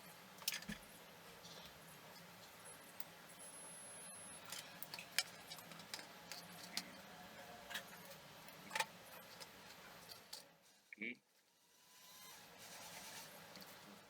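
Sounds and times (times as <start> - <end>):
small tools clicking and tapping: 4.4 - 7.0.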